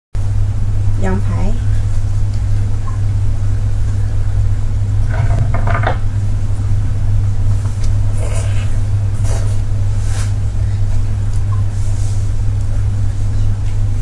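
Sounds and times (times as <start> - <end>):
steady low hum: 0.2 - 14.0.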